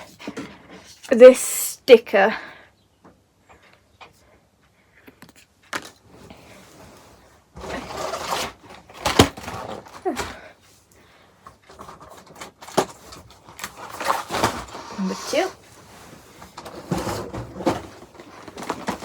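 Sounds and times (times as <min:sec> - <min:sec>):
cardboard and paper rustling: 0:05.2 - 0:19.0.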